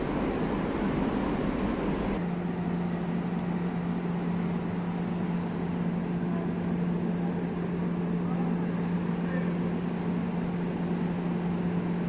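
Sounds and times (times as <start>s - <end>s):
train running gear humming: 0.0s - 12.0s.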